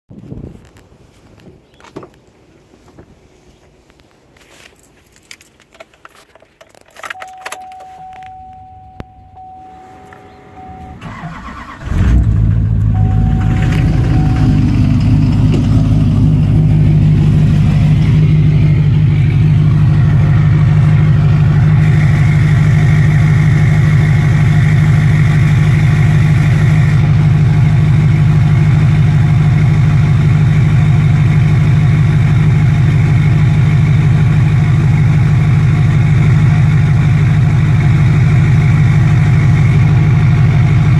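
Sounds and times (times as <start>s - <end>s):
steady warning tone: 7.2s - 11.8s, 12.7s - 27.1s
diesel engine cranking and idling: 7.2s - 40.9s.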